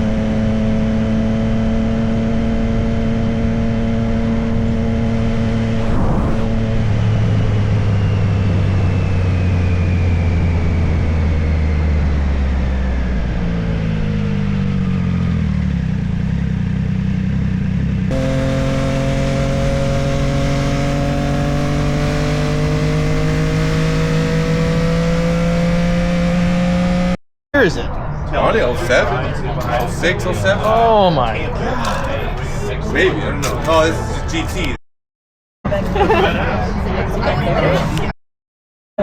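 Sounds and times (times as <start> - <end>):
wind and road noise: 5.5 - 7.1, 18.1 - 27.1
motorcycle engine running: 14.0 - 27.2.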